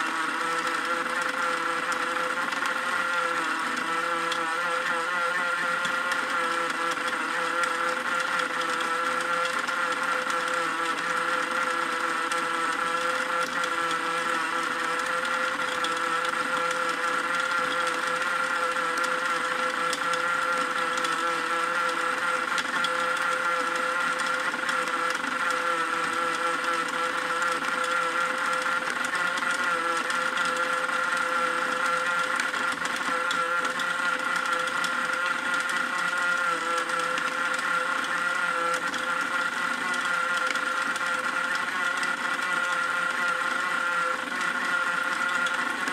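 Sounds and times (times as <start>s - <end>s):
small electric motor whirring: 0.0s - 45.9s.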